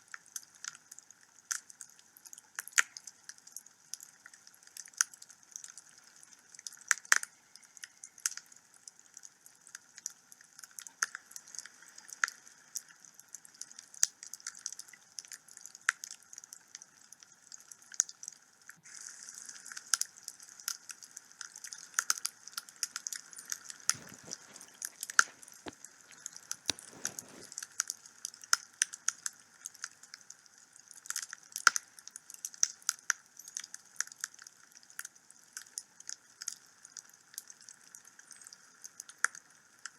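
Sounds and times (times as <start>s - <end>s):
wood fire crackling and popping: 19.6s - 35.0s.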